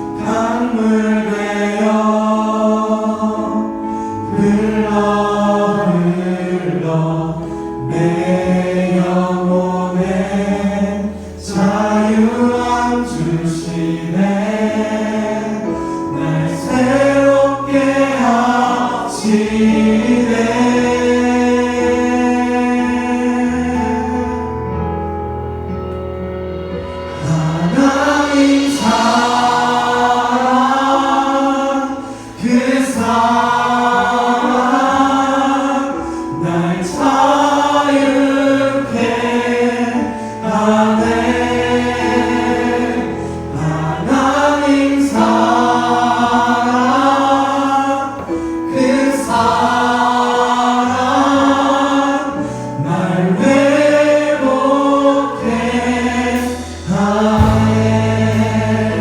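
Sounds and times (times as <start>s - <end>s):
group singing worship song: 0.0s - 24.8s, 26.5s - 59.0s
band accompaniment with low bass: 3.4s - 35.2s, 55.4s - 59.0s.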